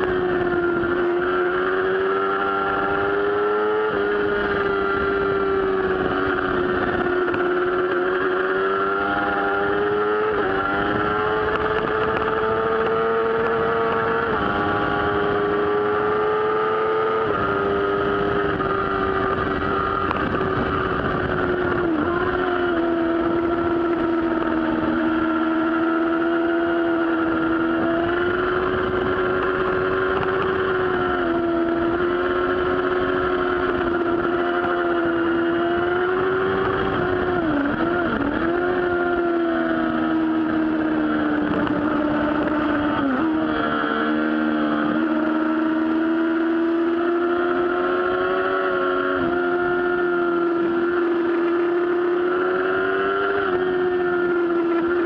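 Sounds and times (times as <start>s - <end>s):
motorcycle engine at high revs: 0.0s - 55.0s.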